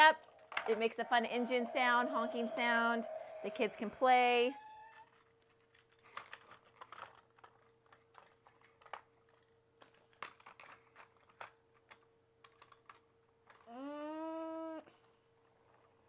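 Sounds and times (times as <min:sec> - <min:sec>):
faint steady hum: 0:00.0 - 0:16.0
plastic toy trucks clicking: 0:04.7 - 0:13.8.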